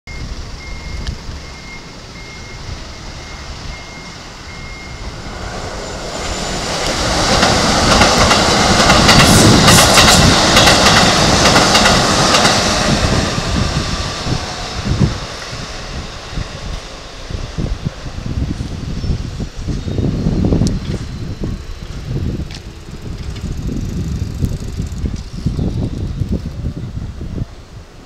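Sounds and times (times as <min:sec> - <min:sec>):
electric train passing: 0:00.1 - 0:28.0
wheel clicks over rail joints: 0:22.4 - 0:25.3.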